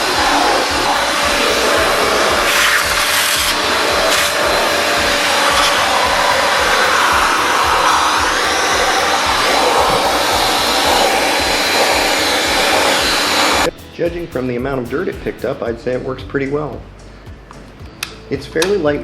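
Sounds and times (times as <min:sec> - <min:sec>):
hand-held vacuum running: 0:00.0 - 0:13.7.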